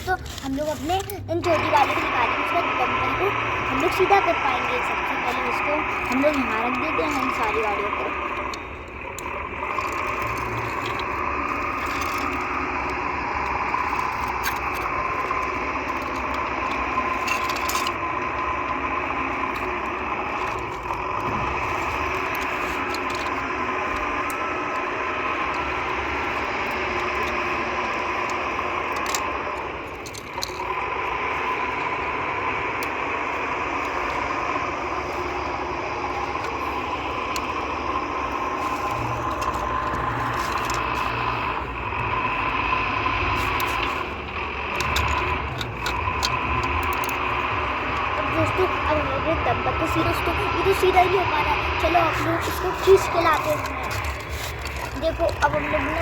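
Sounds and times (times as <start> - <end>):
toy electric motor whining: 0.0 - 56.0.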